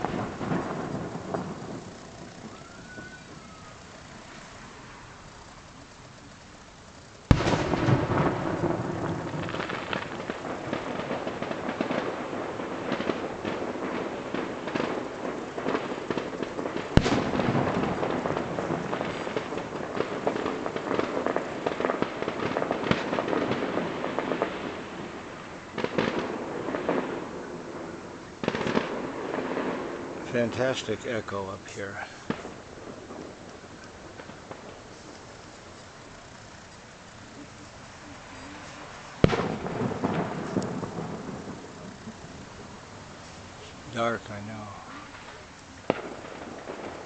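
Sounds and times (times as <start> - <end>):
distant fireworks bangs and crackles: 0.0 - 47.0.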